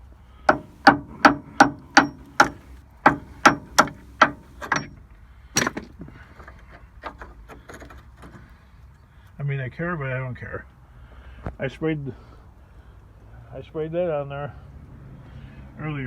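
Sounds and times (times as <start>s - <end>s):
hammer striking metal: 0.5s - 5.0s, 5.6s - 5.9s.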